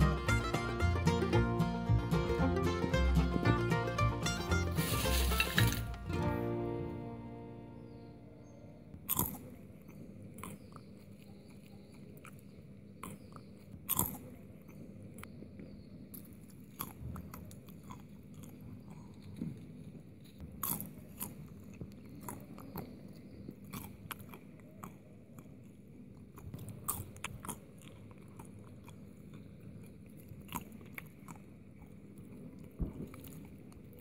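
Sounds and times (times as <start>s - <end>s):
low steady background noise: 0.0s - 34.0s
peanuts being chewed: 8.9s - 34.0s.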